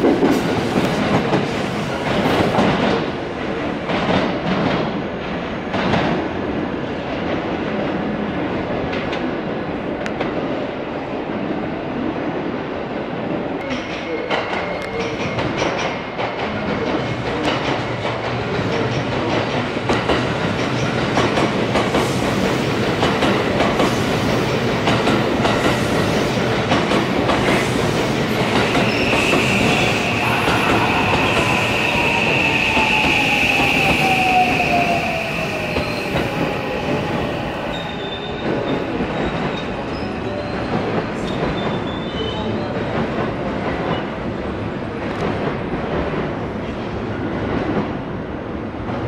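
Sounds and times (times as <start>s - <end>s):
high wheel squeal: 28.7s - 38.4s.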